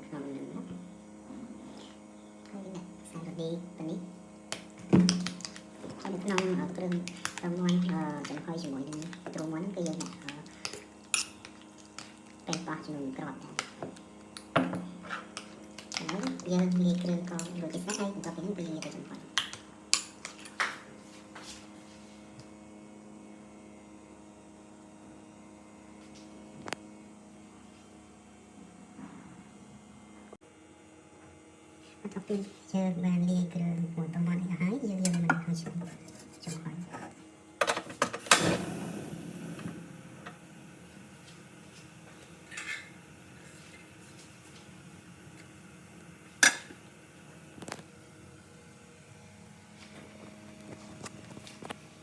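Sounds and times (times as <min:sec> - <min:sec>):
electrical hum: 0:00.0 - 0:52.0.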